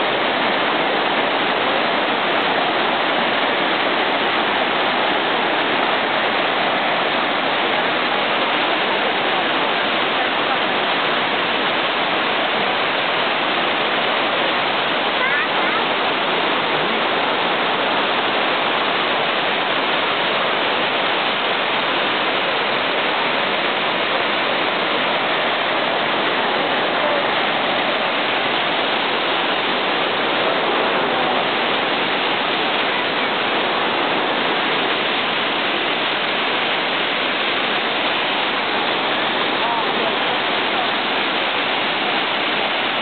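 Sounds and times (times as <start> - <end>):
waterfall roaring: 0.0 - 43.0.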